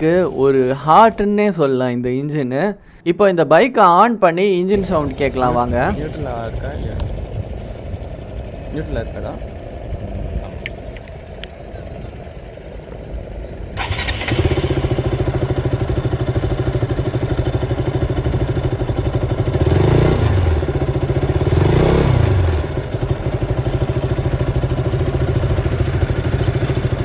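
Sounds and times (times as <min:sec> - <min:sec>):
electric starter cranking: 0:04.8 - 0:11.6, 0:13.6 - 0:27.0
motorcycle engine idling and revving: 0:04.8 - 0:27.0.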